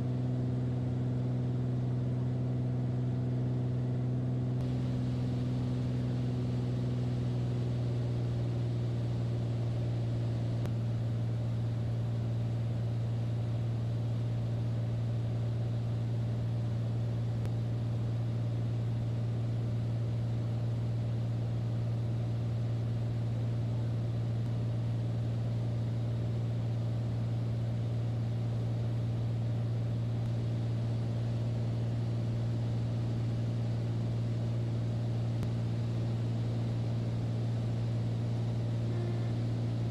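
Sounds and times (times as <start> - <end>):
light airplane engine drone: 0.0 - 39.9.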